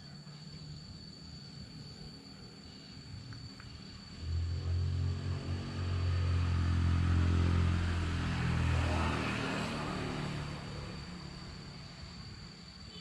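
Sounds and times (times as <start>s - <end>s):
vehicle engine passing by: 4.0s - 12.6s.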